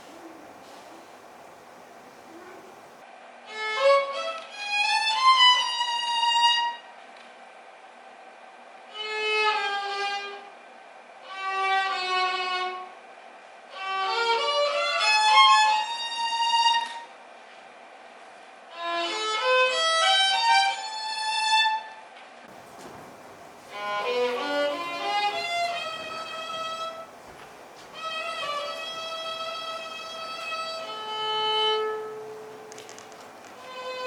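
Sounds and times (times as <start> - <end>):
solo violin playing: 22.6 - 32.8, 33.4 - 34.0.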